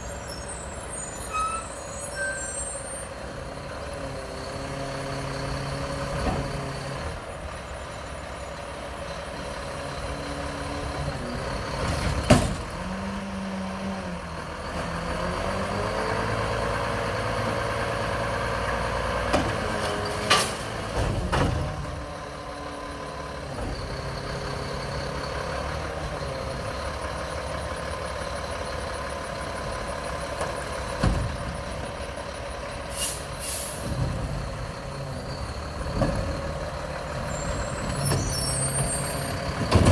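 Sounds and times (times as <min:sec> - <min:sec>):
diesel truck engine revving: 0:03.1 - 0:39.9
air brake hissing: 0:32.9 - 0:34.0.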